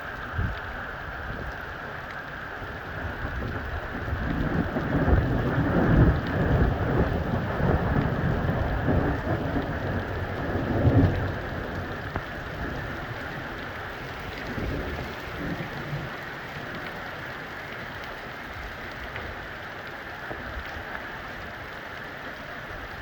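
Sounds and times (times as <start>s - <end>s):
steady rain: 0.0s - 23.0s
thunder rumbling: 2.8s - 19.6s.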